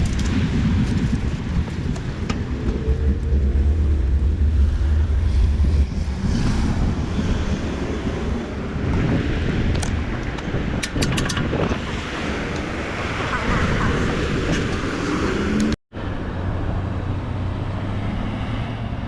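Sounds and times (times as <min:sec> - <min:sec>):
road and traffic noise: 0:00.0 - 0:19.0
wind rumbling on microphone: 0:00.0 - 0:19.0
sharp clicks: 0:09.7 - 0:12.7.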